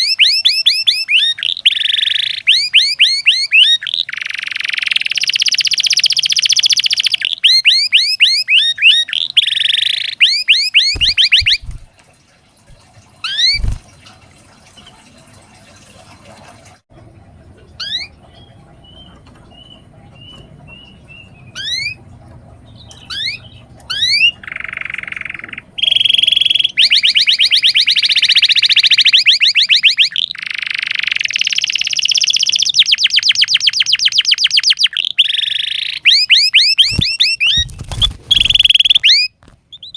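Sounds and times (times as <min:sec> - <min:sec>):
canary singing trills: 0:00.0 - 0:11.9, 0:13.2 - 0:13.8, 0:17.8 - 0:39.9.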